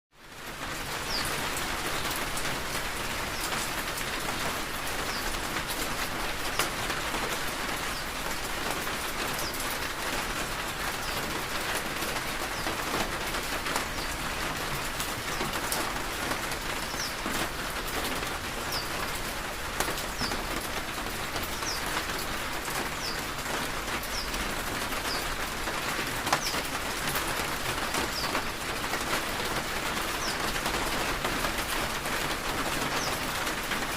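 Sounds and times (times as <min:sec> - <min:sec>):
steady rain falling: 0:00.2 - 0:33.9
bird chirping: 0:23.0 - 0:23.2, 0:25.0 - 0:25.2, 0:28.1 - 0:28.3.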